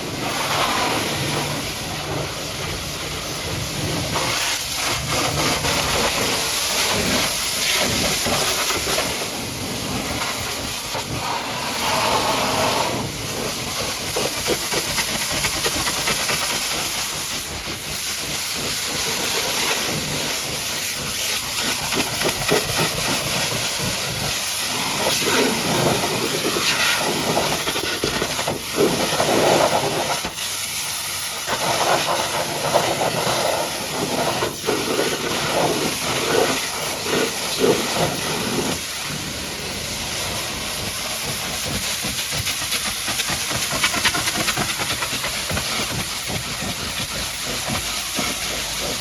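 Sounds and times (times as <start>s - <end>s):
pressure washer jet spraying water: 0.0s - 49.0s.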